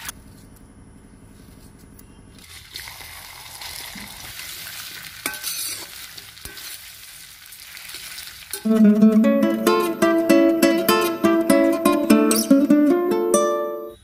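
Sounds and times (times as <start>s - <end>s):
ladle stirring in pan: 2.4s - 8.7s
taro sizzling in hot oil: 2.4s - 10.0s.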